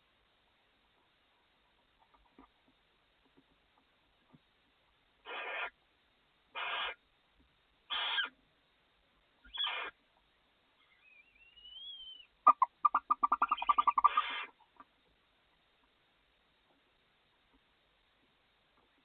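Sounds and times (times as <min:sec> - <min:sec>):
owl hissing calls: 0:05.2 - 0:05.8, 0:06.5 - 0:07.0, 0:07.9 - 0:08.4, 0:09.5 - 0:10.0, 0:10.8 - 0:14.6
thin rising whistle: 0:10.9 - 0:12.3.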